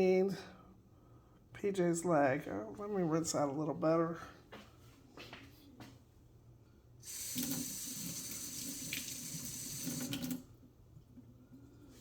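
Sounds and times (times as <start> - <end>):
tap water running into sink: 7.1 - 10.5.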